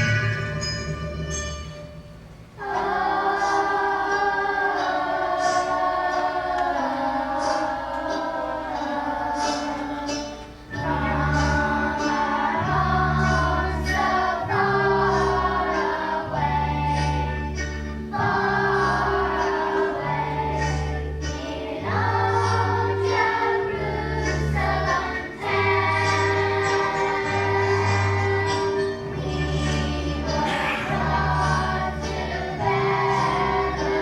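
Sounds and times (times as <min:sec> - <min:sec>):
musical accompaniment with bass: 0:00.0 - 0:34.0
choir singing: 0:02.6 - 0:34.0.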